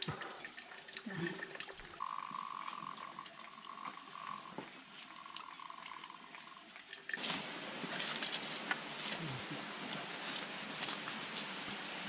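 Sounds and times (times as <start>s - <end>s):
running water splashing: 0.0s - 12.0s.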